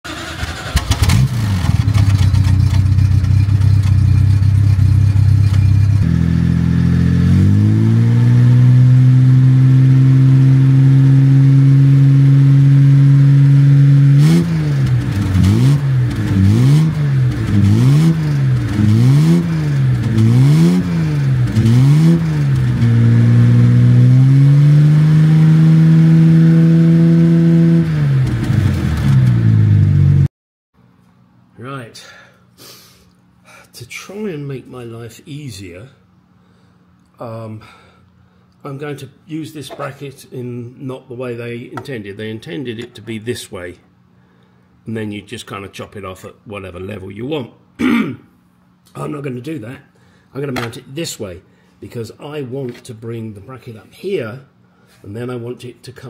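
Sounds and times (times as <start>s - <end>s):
car engine revving: 0.1s - 30.3s.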